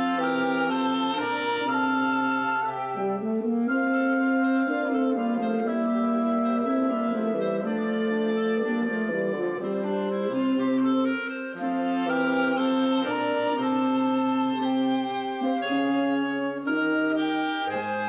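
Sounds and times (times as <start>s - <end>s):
instrumental music with long notes: 0.0s - 18.0s.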